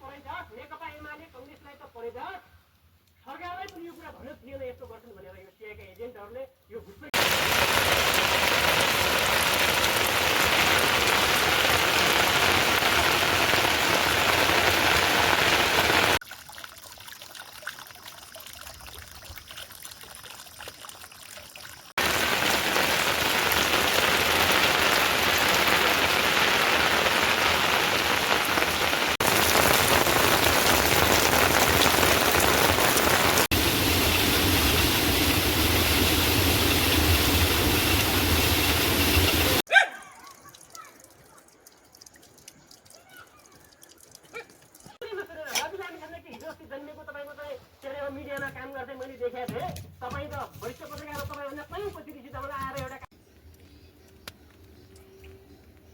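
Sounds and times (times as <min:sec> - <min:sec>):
heavy rain hissing: 0:07.2 - 0:16.2, 0:22.0 - 0:39.6.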